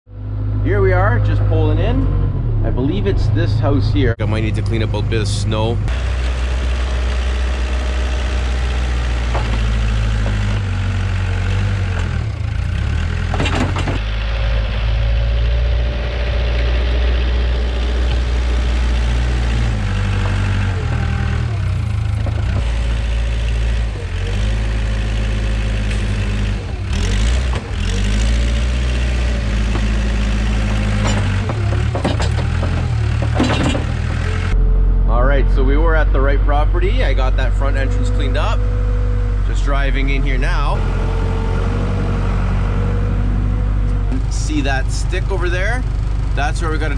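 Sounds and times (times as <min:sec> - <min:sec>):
diesel engine revving: 0:00.1 - 0:46.9
machine clanking: 0:07.6 - 0:12.2, 0:13.1 - 0:14.1, 0:29.1 - 0:34.6.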